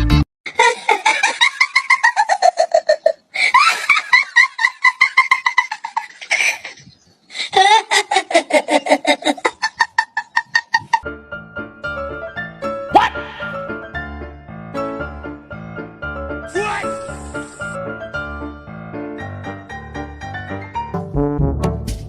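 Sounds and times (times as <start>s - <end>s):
high-pitched hearty laughter: 0.5s - 11.0s.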